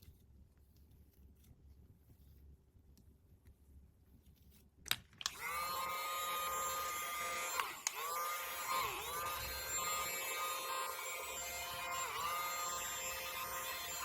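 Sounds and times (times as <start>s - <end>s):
click: 4.9s - 5.4s, 7.6s - 8.1s
small electric motor whirring: 5.3s - 14.0s.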